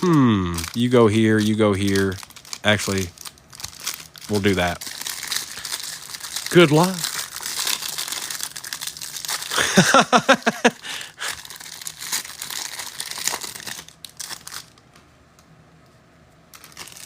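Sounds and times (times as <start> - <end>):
short vocal sound: 0.0 - 0.7
wrappers being torn and crinkled: 0.0 - 14.9, 16.5 - 17.0.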